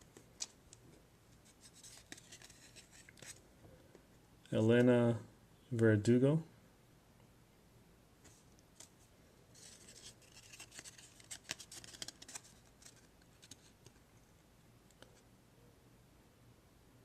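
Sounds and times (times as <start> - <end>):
trading cards rustling and clicking: 0.0 - 3.4, 8.3 - 14.0.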